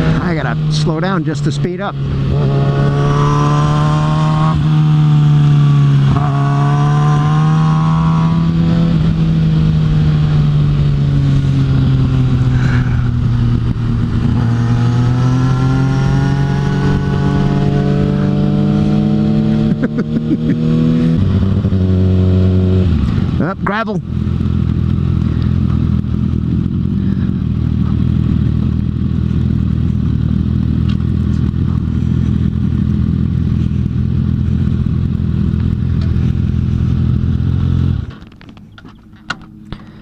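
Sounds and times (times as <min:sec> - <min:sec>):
motorcycle engine upshifting: 0:01.6 - 0:23.5, 0:24.1 - 0:40.0
wind rush: 0:08.4 - 0:19.0.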